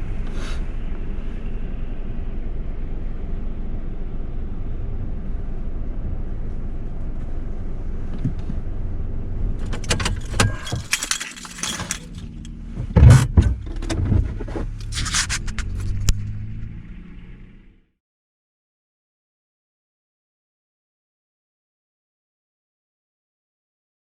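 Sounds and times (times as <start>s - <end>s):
vehicle engine rumbling: 0.0s - 17.9s
clicks and knocks: 9.6s - 16.3s
rustling handling noises: 10.0s - 12.5s.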